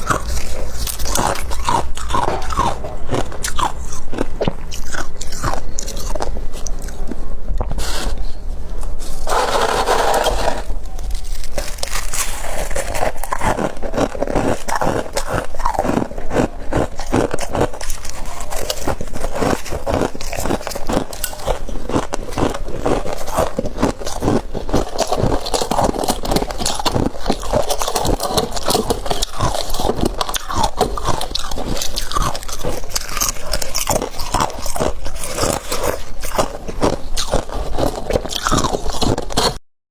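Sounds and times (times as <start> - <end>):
scraping: 0.0 - 13.6
crunching and chewing frost: 0.0 - 39.6.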